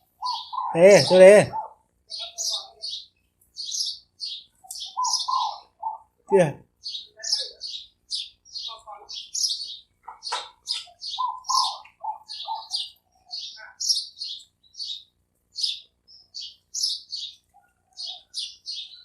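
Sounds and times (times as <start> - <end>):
dove cooing: 0.0 - 3.0, 4.8 - 6.5, 10.0 - 13.9, 17.5 - 19.0
small bird chirping: 0.0 - 19.0.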